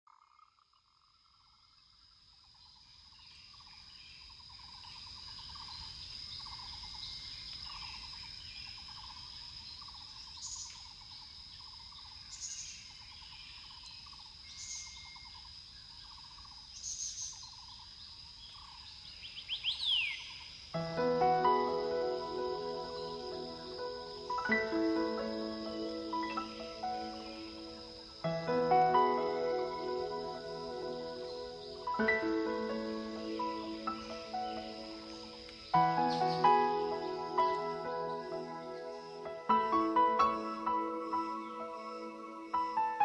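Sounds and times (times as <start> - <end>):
insect drone with trilling: 0.1 - 43.0
bird chirps: 18.4 - 20.5.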